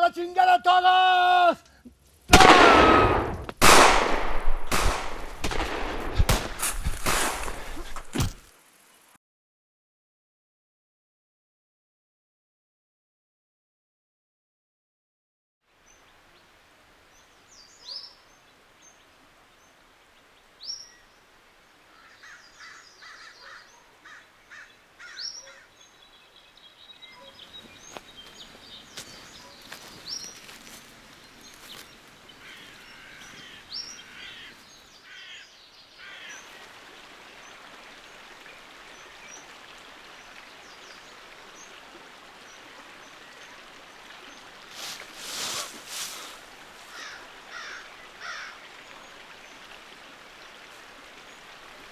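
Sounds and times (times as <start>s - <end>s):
background hiss: 0.0s - 9.2s, 15.7s - 23.4s, 24.0s - 51.9s
birds chirping: 21.9s - 51.9s.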